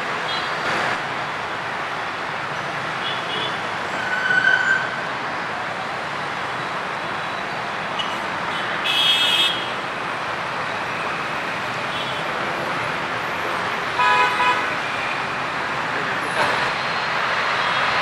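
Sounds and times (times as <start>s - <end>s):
road traffic: 0.0s - 18.0s
vehicle horn honking: 14.0s - 14.8s.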